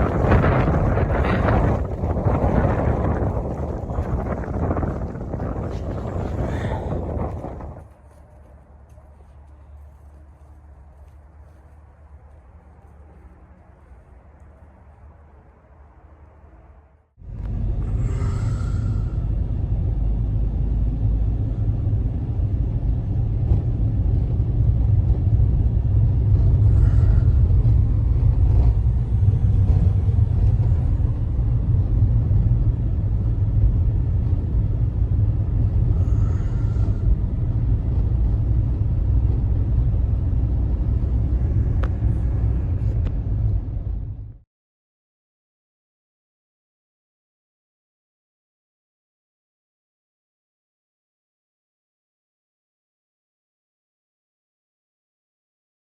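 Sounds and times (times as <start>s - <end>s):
wind rumbling on microphone: 0.0s - 44.4s.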